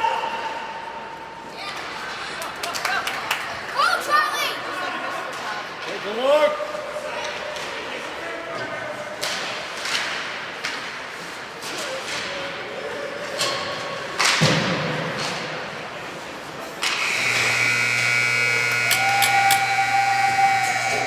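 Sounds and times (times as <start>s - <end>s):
hockey sticks and puck clacking: 9.2s - 12.5s, 13.3s - 15.4s.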